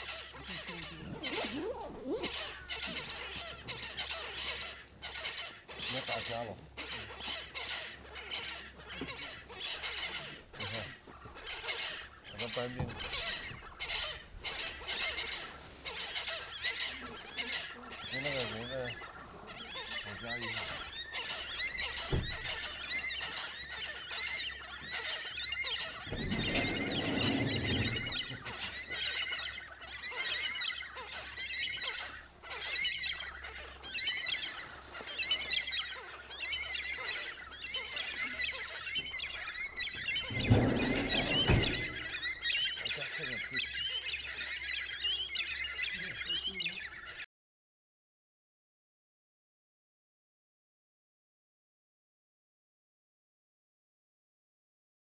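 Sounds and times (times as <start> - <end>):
small birds chirping: 0.0 - 47.2
low rumbles: 26.0 - 28.9, 39.8 - 42.6.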